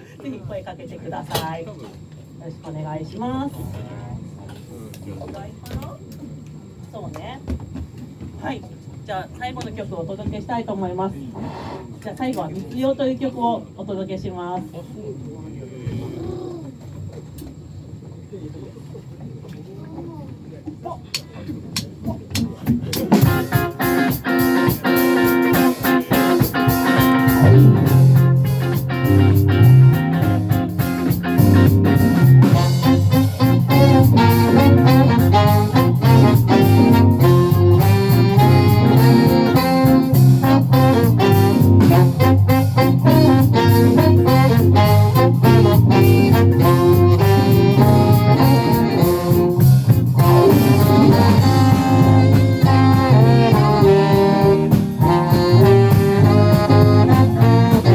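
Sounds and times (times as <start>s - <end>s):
drum kit beat: 22.7s - 57.9s
live jazz band playing: 23.0s - 57.9s
low bass notes: 25.8s - 57.9s.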